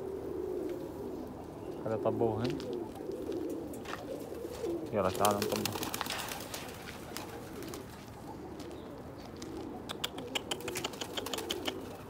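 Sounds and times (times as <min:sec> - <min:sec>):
pigeons cooing: 0:00.0 - 0:12.0
sharp clicks and taps: 0:09.9 - 0:11.5.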